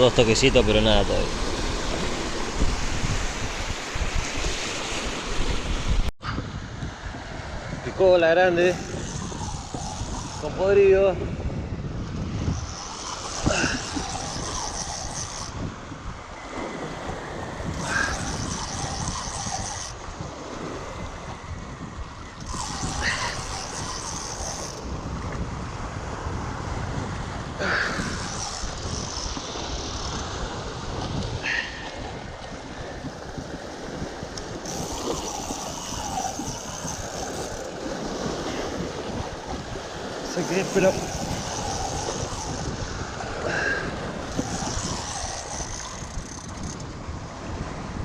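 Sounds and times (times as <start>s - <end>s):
water lapping: 0.0s - 6.1s, 7.8s - 48.0s
wind blowing on microphone: 0.0s - 48.0s
high squeak: 17.8s - 20.0s, 22.4s - 24.8s, 34.6s - 37.7s, 40.3s - 42.8s.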